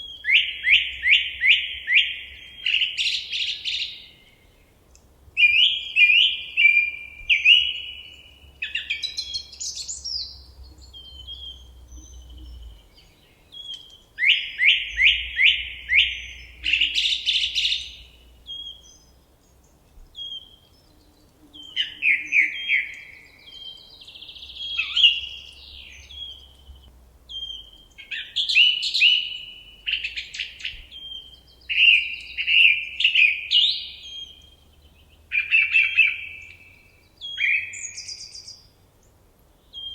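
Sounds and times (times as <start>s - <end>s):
nightingale singing: 0.0s - 39.9s.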